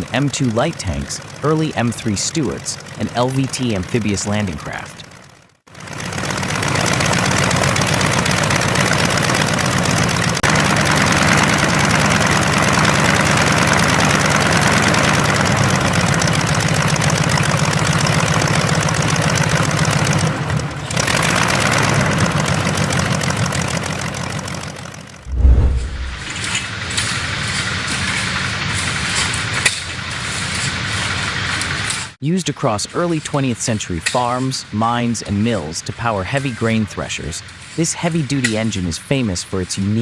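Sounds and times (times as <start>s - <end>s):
radial aircraft engine running: 0.0s - 26.6s.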